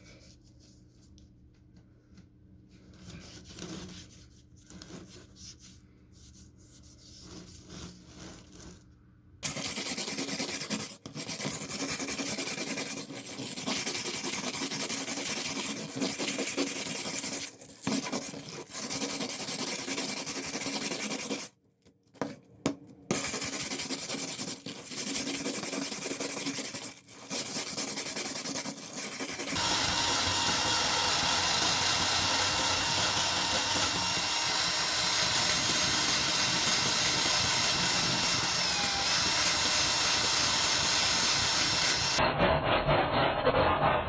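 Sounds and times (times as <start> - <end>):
power tool rushing: 29.5 - 42.2.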